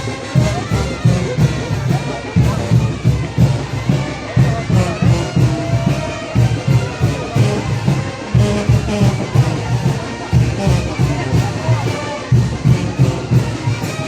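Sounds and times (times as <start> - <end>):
bass drum beating: 0.0 - 14.0
trumpets and trombones melody: 0.0 - 14.0.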